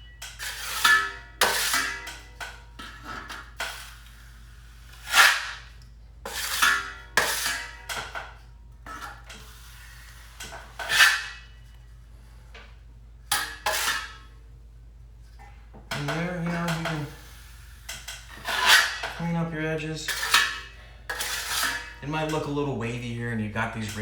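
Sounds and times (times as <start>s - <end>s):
drywall knife scraping compound: 0.4s - 2.0s, 4.8s - 7.5s, 9.0s - 11.4s, 13.6s - 14.1s, 16.0s - 22.6s.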